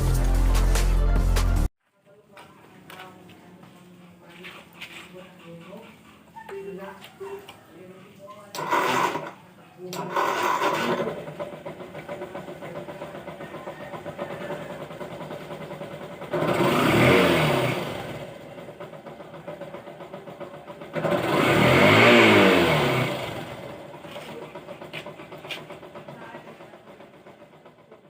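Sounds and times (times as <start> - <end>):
motorcycle engine idling and revving: 2.3 - 28.0.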